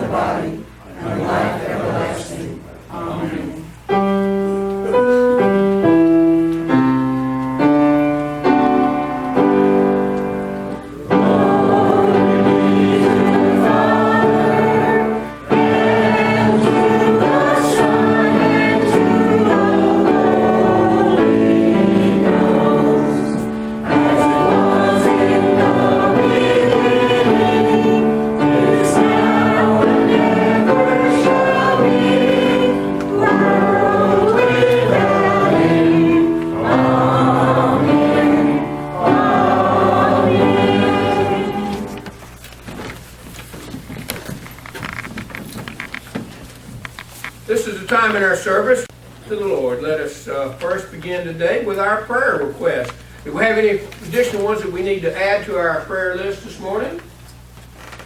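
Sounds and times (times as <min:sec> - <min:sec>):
church choir singing: 0:00.0 - 0:03.7, 0:06.7 - 0:42.3.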